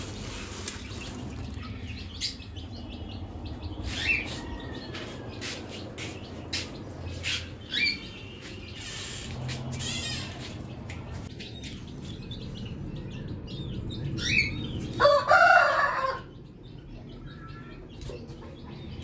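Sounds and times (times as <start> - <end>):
steady low rumble: 0.0 - 15.0
budgerigars chirping: 5.4 - 10.8, 11.4 - 14.9.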